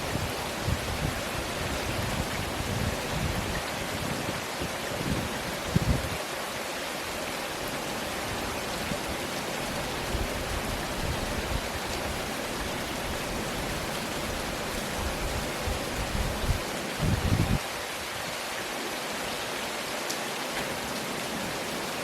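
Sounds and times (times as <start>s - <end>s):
heavy rain hissing: 0.0s - 22.0s.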